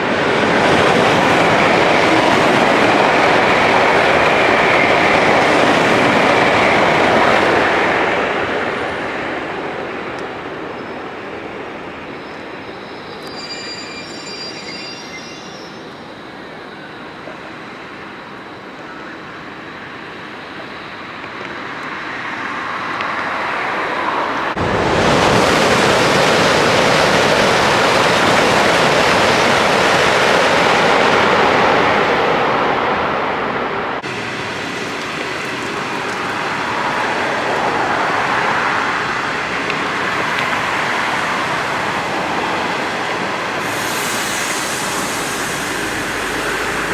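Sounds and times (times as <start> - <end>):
passenger train passing: 0.0 - 46.9.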